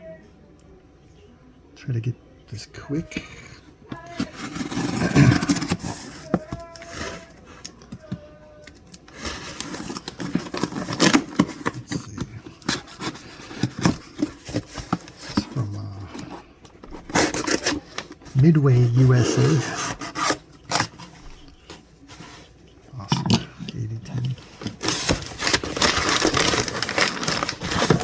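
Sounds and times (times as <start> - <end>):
cardboard box scraping and rustling: 4.0 - 7.4, 9.2 - 21.3, 24.6 - 28.0.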